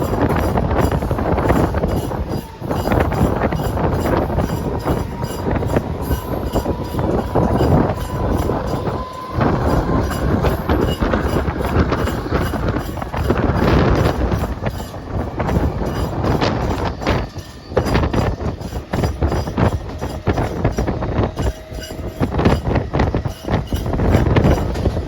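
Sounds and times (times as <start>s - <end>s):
electric train rattling: 0.0s - 25.0s
thin steady whine: 0.0s - 25.0s.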